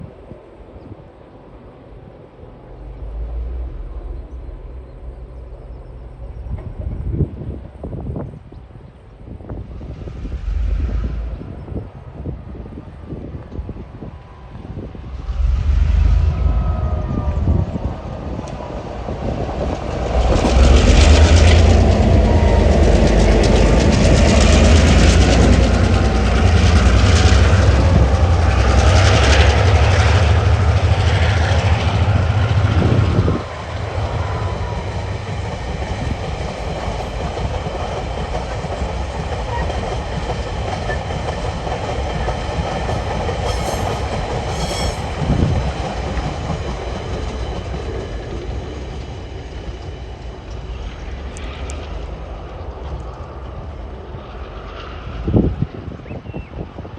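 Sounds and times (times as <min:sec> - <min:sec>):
locomotive engines rumbling: 0:00.0 - 0:55.6
train wheels clattering on rails: 0:18.3 - 0:55.1.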